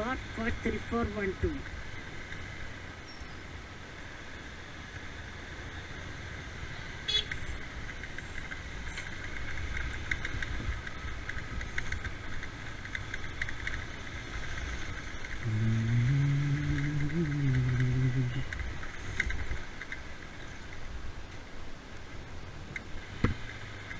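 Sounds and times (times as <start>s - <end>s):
road and wind noise: 0.0s - 23.9s
motorcycle engine running: 7.1s - 19.1s.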